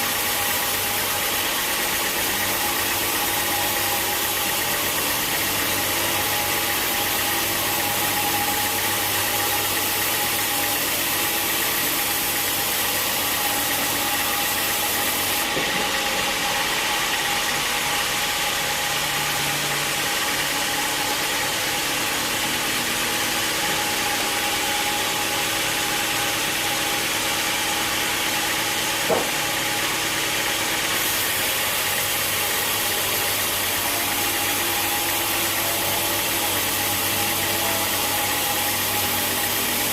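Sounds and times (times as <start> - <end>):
sawmill machinery humming: 0.0 - 39.9
sharp knock: 29.1 - 29.4.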